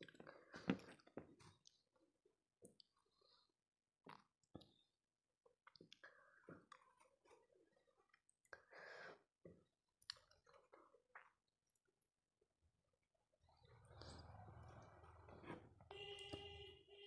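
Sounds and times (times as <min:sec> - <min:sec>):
wet mouth clicks and chewing: 0:10.0 - 0:12.0.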